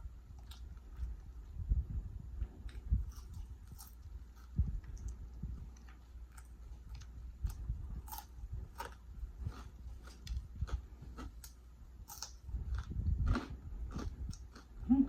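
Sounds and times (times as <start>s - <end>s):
person chewing food: 2.6s - 15.0s.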